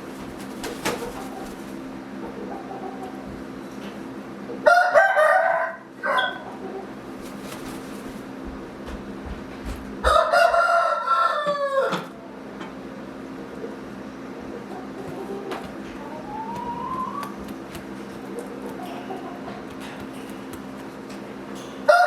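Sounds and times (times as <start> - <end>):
rooster crowing: 4.6 - 6.4, 10.0 - 12.1.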